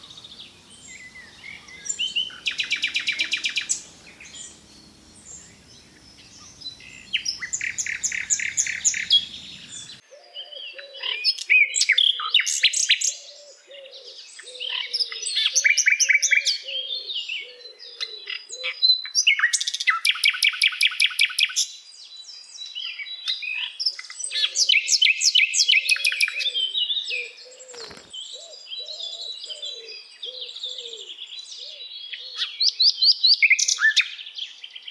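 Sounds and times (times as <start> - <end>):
low wavering warble: 0.0 - 10.0
songbird trills and chirps: 0.0 - 10.8.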